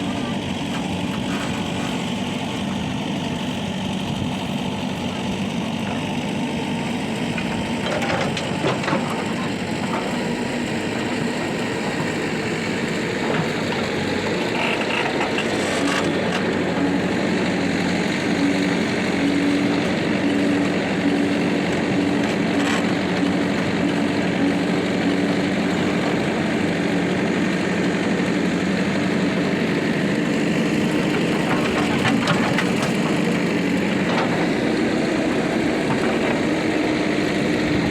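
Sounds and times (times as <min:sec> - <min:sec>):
heavy diesel engines running: 0:00.0 - 0:37.9.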